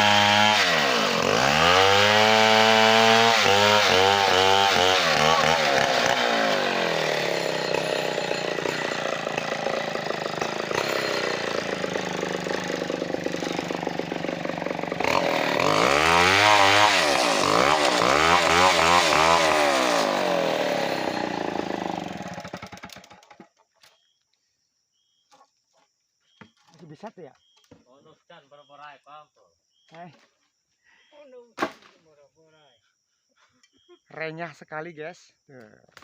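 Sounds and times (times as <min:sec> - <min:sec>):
chainsaw revving: 0:00.0 - 0:23.4.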